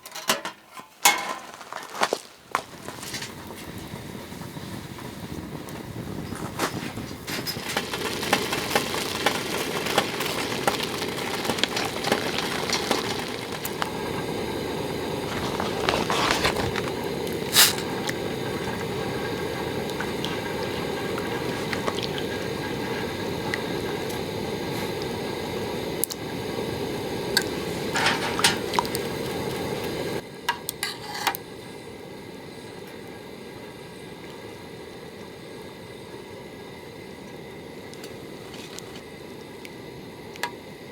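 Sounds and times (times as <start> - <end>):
steady hiss: 0.6 - 40.9
food sizzling in a pan: 4.6 - 30.2
utensil clinking: 27.4 - 29.2.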